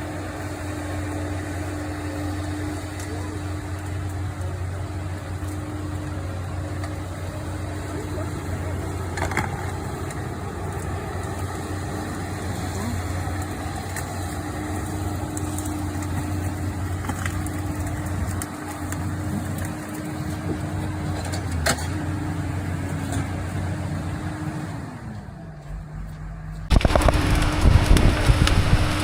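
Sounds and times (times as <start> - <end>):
machine engine running: 0.0 - 29.0
sudden loud noise: 26.7 - 29.0.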